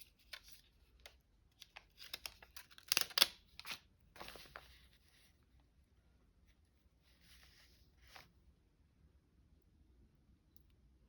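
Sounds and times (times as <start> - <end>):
paper rustling and crackling: 1.6 - 5.3.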